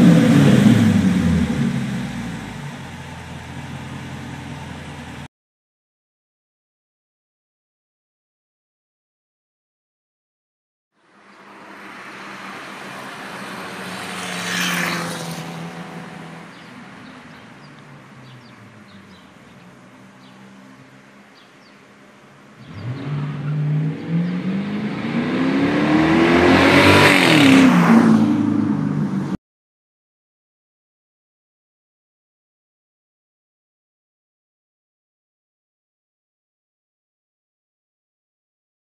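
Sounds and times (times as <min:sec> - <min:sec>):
car engine accelerating: 0:00.0 - 0:05.3, 0:11.4 - 0:29.4
car passing by: 0:11.0 - 0:21.7, 0:22.6 - 0:29.4.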